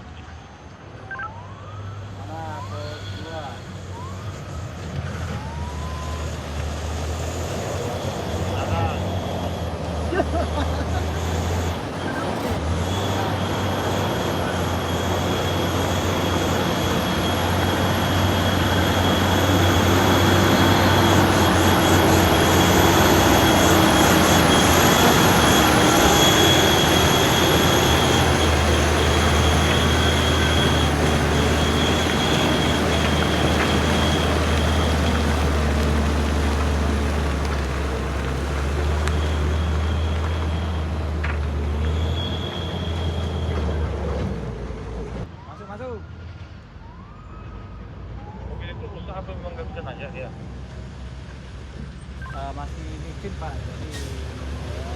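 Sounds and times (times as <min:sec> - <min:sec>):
heavy truck engine under load: 0:03.7 - 0:45.3, 0:52.8 - 0:54.9.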